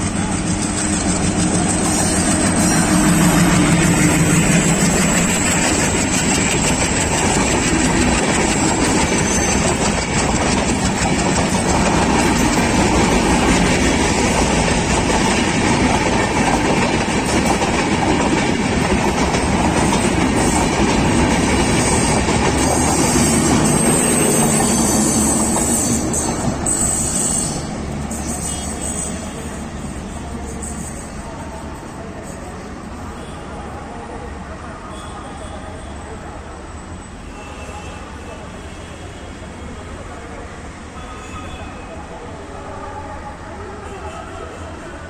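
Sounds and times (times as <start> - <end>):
train wheels rumbling on rails: 0.0 - 33.5.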